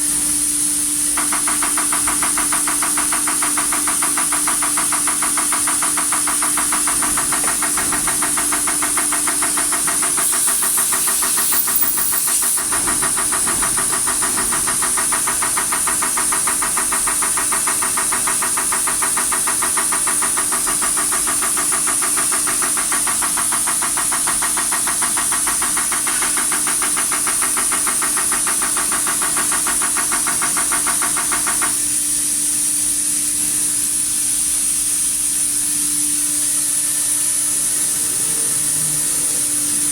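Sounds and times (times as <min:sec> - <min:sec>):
hiss of spray: 0:09.6 - 0:13.0
injector ticking: 0:09.9 - 0:12.7.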